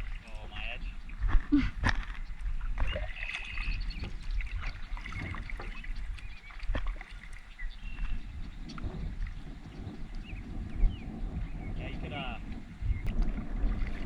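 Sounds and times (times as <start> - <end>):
paddle strokes in water: 0.0 - 14.0
wind rumble on microphone: 0.0 - 14.0
knocks against hull: 2.8 - 6.0.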